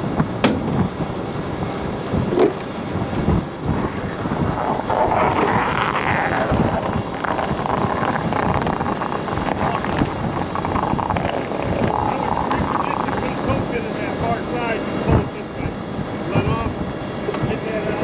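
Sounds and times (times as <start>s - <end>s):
low rumble: 0.0s - 18.0s
wind buffeting microphone: 0.0s - 18.0s
knocks: 0.4s - 0.8s.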